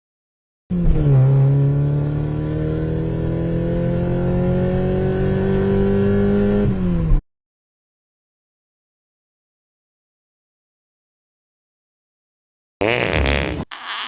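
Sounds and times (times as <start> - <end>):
car engine accelerating: 0.7 - 7.2.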